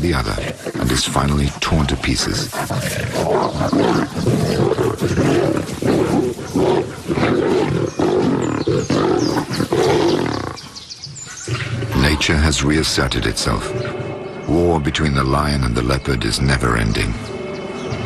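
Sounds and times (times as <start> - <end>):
lions snarling and growling: 0.0 - 14.0.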